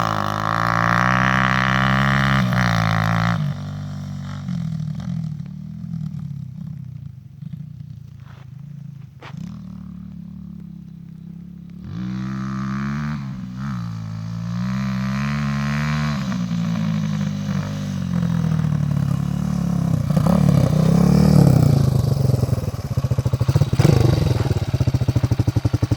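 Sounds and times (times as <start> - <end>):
dirt bike engine revving: 0.0 - 5.3, 11.7 - 25.9.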